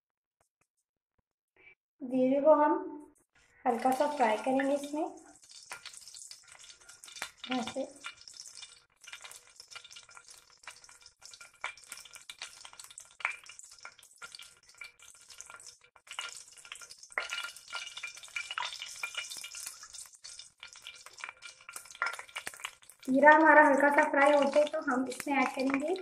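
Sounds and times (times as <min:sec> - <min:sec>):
spatula stirring in pan: 0:03.4 - 0:26.0
cumin seeds sizzling in hot oil: 0:03.6 - 0:26.0.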